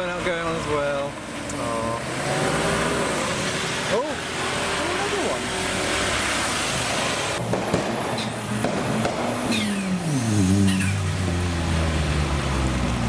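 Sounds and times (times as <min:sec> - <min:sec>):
car engine droning: 0:00.0 - 0:13.0
spinning tyres hissing: 0:00.8 - 0:13.0
tyre squeals: 0:09.5 - 0:11.2.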